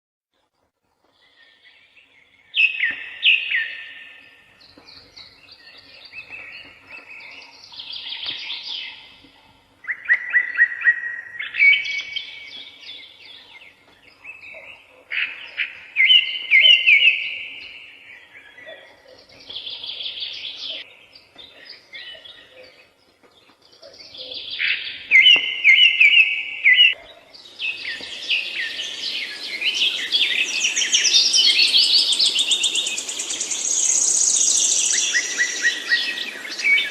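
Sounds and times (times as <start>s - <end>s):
songbirds singing and chirping: 0.4s - 36.9s
steady hiss: 27.6s - 36.9s.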